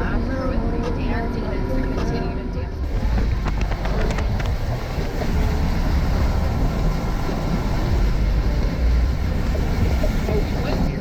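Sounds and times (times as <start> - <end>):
vehicle engine rumbling: 2.8 - 11.0.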